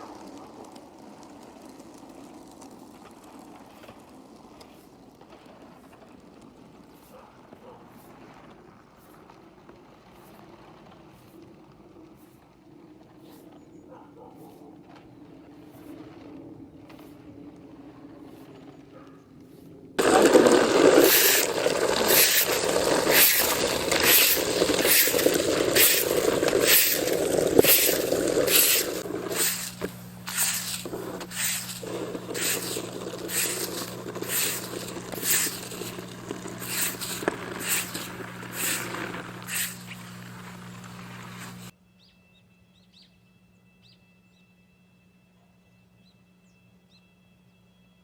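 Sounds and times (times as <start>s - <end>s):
steady low hum: 19.4s - 41.7s
snow shovel scraping: 19.5s - 41.7s.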